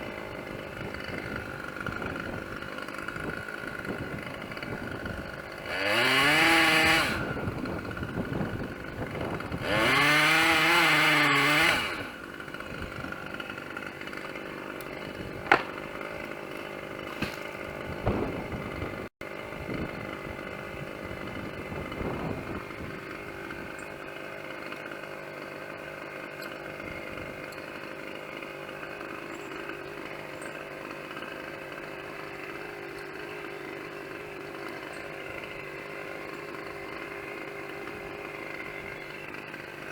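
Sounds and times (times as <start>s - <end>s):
chainsaw revving and idling: 0.0s - 39.9s
sharp knocks: 15.4s - 15.8s.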